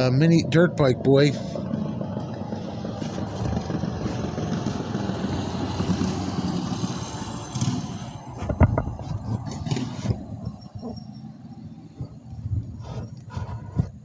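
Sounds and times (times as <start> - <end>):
dirt bike engine running: 0.0 - 14.0
sharp knocks: 8.4 - 10.6.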